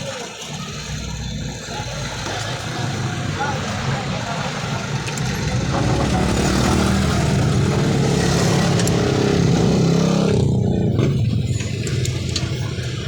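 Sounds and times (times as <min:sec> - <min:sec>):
scooter engine revving: 0:00.0 - 0:13.0.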